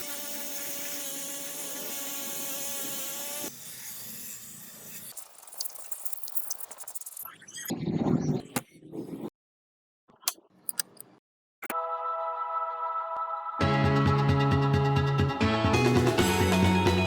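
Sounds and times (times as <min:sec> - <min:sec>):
power tool motor whining: 0:00.0 - 0:05.1.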